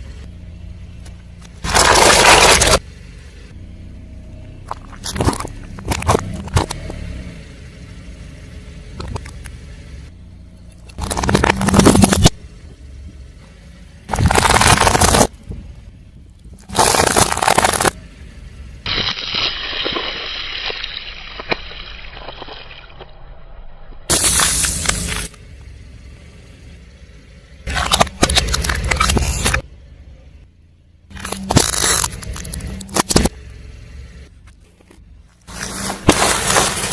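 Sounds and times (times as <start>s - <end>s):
tyre crushing objects: 1.6s - 2.8s, 14.1s - 15.3s, 16.6s - 18.0s, 35.5s - 36.9s.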